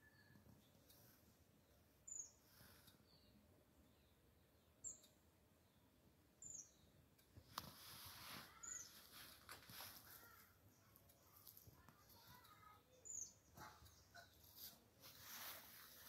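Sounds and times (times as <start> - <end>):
high-pitched bird chirps: 8.2 - 9.3.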